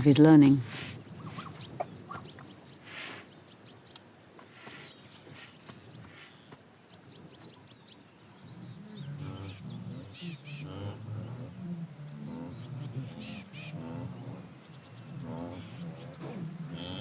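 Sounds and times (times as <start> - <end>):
small birds chirping: 0.0 - 17.0
zebra harsh barking calls: 8.7 - 17.0.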